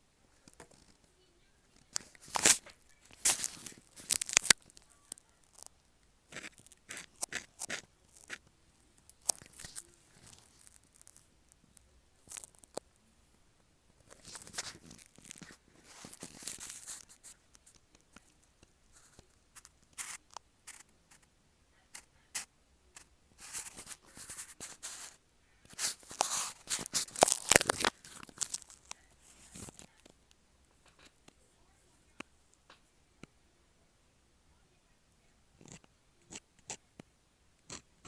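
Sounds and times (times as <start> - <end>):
pen nib scratching on paper: 6.3 - 8.5, 14.1 - 21.3, 21.9 - 30.0, 35.6 - 36.8, 37.7 - 38.0.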